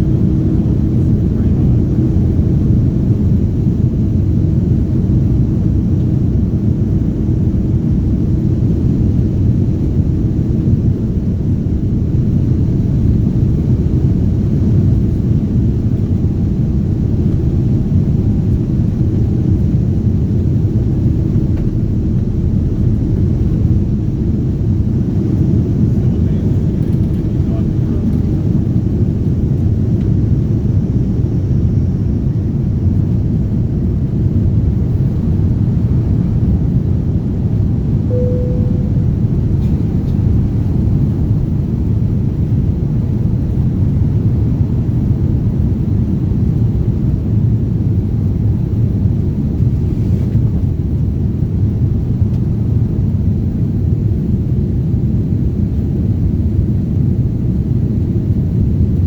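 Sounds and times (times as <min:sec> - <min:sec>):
jet engine rumble: 0:00.0 - 0:59.0
short tone: 0:38.1 - 0:40.0.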